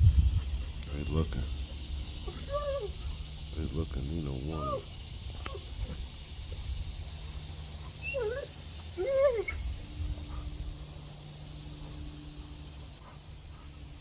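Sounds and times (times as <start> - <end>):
wind rumble on microphone: 0.0 - 3.3
dog whining yelps: 2.2 - 3.2, 7.8 - 9.7.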